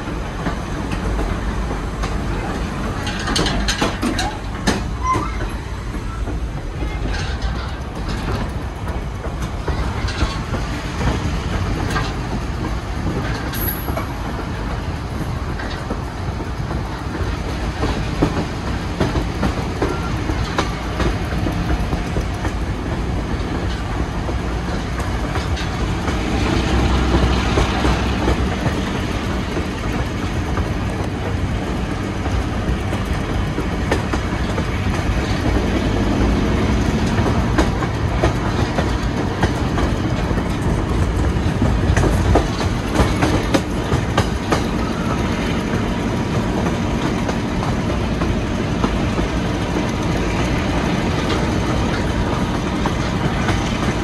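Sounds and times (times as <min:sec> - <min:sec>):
clicks over rail joints: 0:00.0 - 0:54.0
train wheels rumbling on track: 0:00.0 - 0:54.0
brief high squeal: 0:05.0 - 0:06.3.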